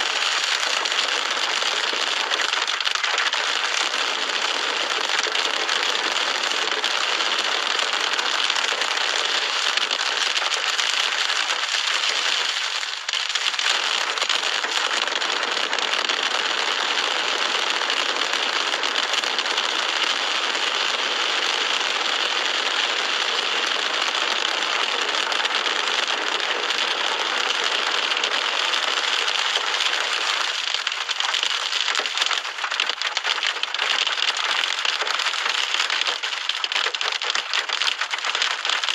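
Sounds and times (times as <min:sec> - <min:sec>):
wind-driven heavy rain: 0:00.0 - 0:38.9.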